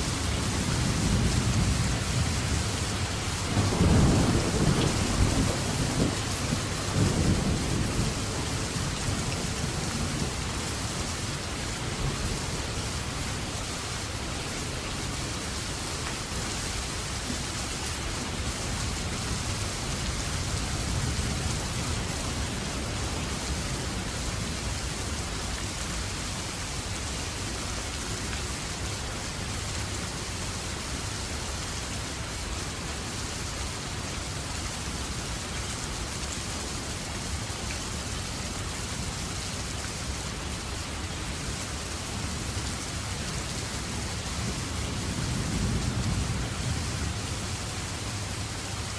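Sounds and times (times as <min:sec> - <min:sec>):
heavy rain falling: 0:00.0 - 0:48.9
low rumble of thunder: 0:00.1 - 0:11.0, 0:43.6 - 0:48.5.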